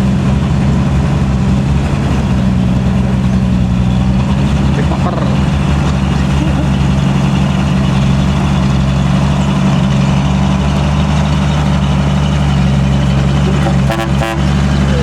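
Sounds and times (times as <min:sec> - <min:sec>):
truck diesel engine idling: 0:00.0 - 0:15.0
short horn toots: 0:13.6 - 0:14.5.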